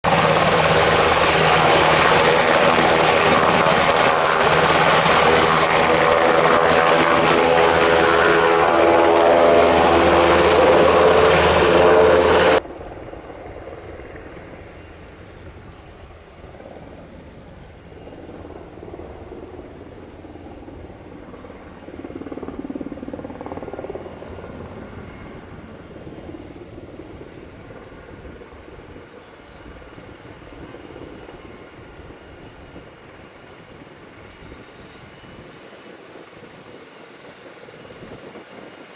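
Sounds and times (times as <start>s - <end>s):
helicopter rotor and turbine: 0.0s - 38.9s.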